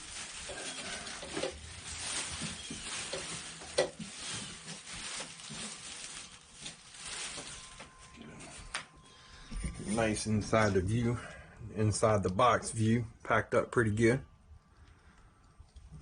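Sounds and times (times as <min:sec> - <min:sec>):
styrofoam and cardboard rustling: 0:00.0 - 0:08.9, 0:09.5 - 0:11.0.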